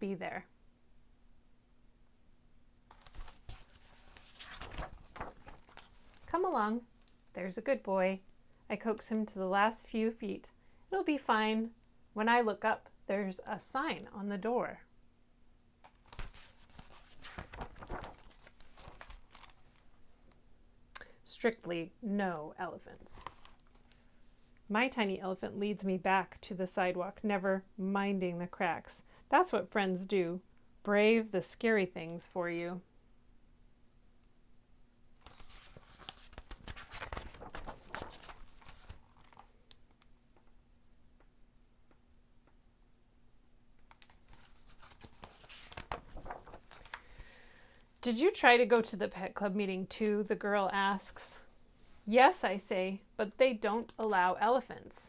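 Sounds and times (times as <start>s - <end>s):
handling rustling: 2.9s - 6.3s, 16.1s - 19.9s
paper pages rustling: 2.9s - 6.3s, 15.8s - 20.0s, 23.0s - 24.0s, 35.2s - 40.1s, 43.8s - 47.2s.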